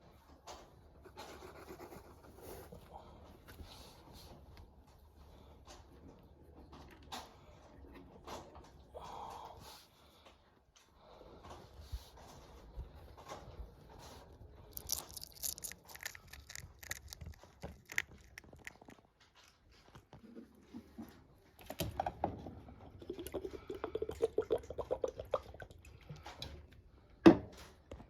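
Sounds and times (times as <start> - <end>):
pet chewing crunchy food: 14.5 - 20.4.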